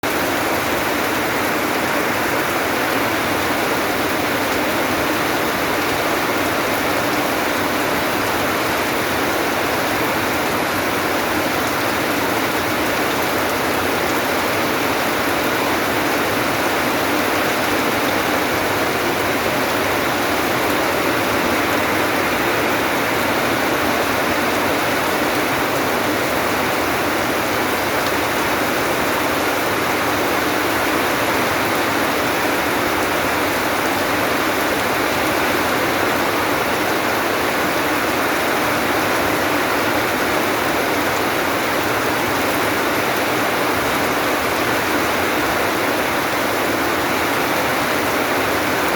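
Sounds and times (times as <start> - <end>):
steady rain: 0.0 - 48.9.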